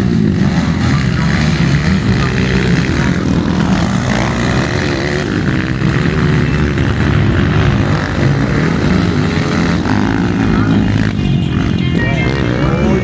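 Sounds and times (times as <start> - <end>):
motorcycle engines revving: 0.0 - 13.0.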